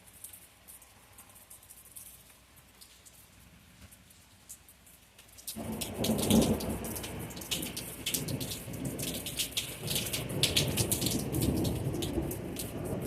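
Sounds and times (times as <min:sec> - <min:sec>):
rain pattering on a surface: 0:00.0 - 0:13.0
low rumble of thunder: 0:05.6 - 0:13.0.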